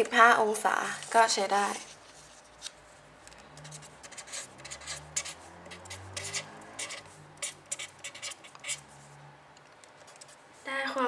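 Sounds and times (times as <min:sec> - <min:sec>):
pen scratching on paper: 0:03.6 - 0:08.9.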